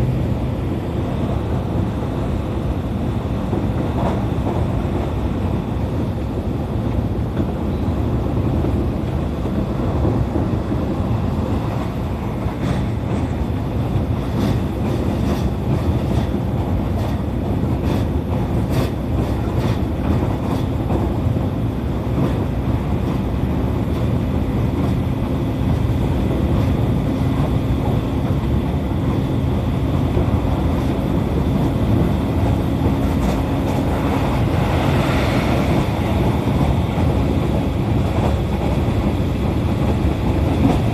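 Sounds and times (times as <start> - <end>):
train wheels rumbling on rail: 0.0 - 40.9
wheels clacking over rail joints: 8.3 - 40.9.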